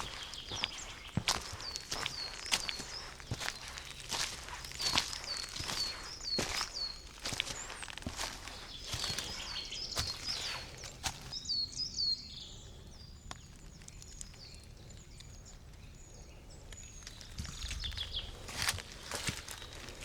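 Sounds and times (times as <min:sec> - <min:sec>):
footsteps on forest path: 0:00.0 - 0:11.9, 0:16.8 - 0:20.0
songbirds whistling: 0:00.0 - 0:20.0.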